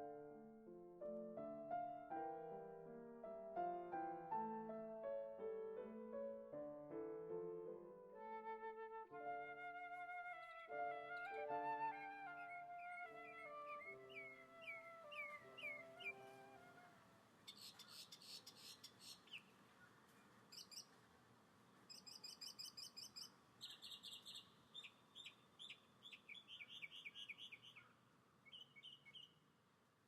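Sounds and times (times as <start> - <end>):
faint songbird chirps and trills: 10.0 - 21.0, 21.9 - 29.5.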